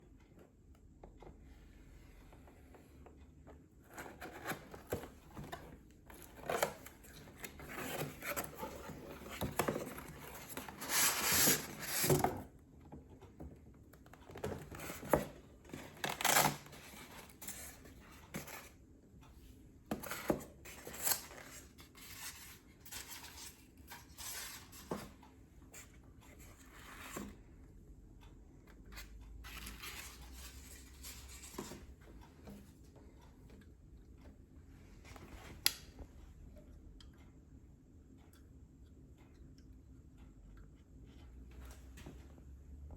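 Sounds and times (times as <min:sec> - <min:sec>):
cardboard and plastic rustling: 0:03.8 - 0:12.5.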